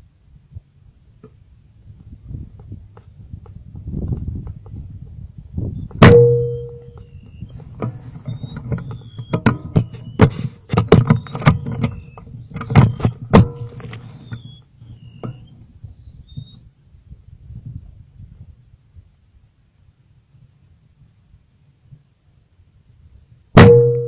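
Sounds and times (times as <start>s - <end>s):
irregular clicks and knocks: 7.7s - 14.5s.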